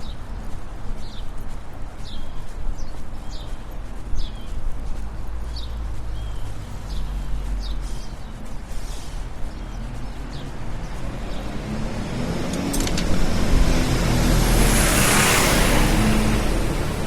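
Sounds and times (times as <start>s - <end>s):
traffic rumble: 0.0s - 17.0s
car passing: 8.8s - 17.0s.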